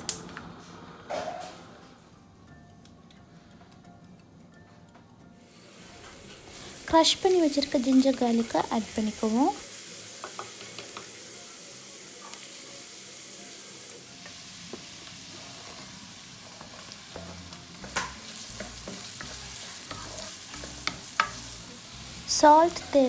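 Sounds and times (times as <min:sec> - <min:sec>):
garlic sizzling in hot oil: 0:05.4 - 0:23.0
spatula knocking and scraping pan: 0:16.4 - 0:21.5.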